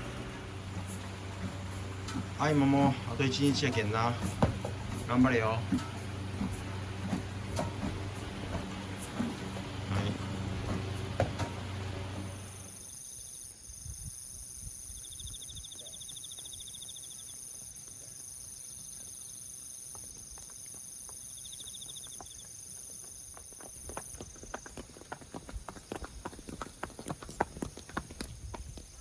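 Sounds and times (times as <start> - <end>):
horse hooves clopping: 0.0 - 12.7, 19.9 - 29.0
low hum: 0.0 - 12.8
knocks: 0.8 - 11.8.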